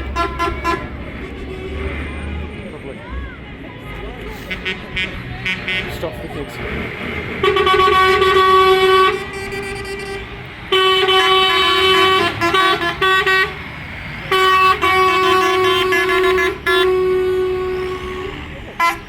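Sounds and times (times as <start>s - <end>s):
vehicle horn blasts: 0.0s - 1.8s, 7.4s - 13.6s, 14.3s - 19.0s
low engine rumble: 0.0s - 19.0s.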